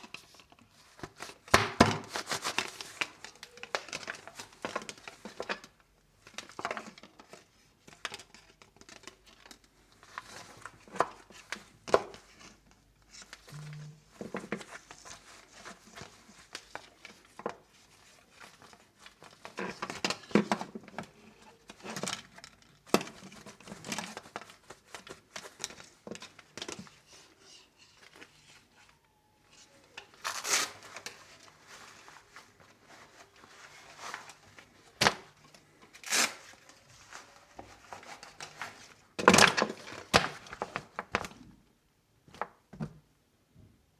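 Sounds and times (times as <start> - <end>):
packaging rustling and crinkling: 0.1 - 41.5
short tearing sounds: 30.2 - 30.9, 36.0 - 36.6.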